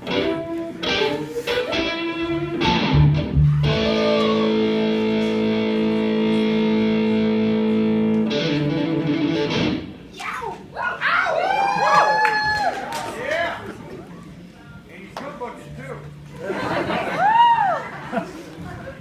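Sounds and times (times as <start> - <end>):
electric guitar strumming chords: 0.0 - 10.0.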